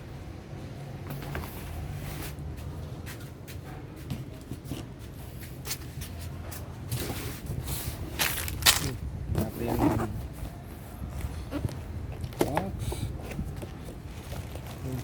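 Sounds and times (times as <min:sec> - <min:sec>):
packaging rustling and clicking: 0:08.2 - 0:09.0.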